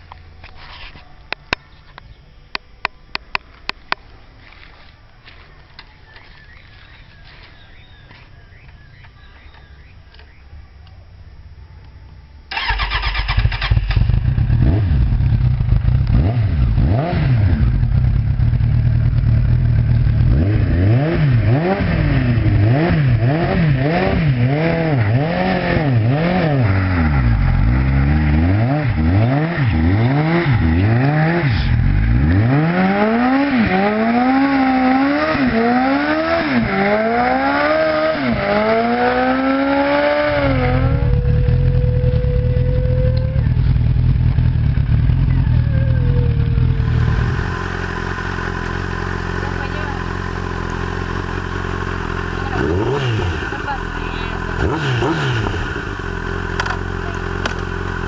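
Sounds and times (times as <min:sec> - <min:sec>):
motorcycle engine revving: 0:12.5 - 0:58.0.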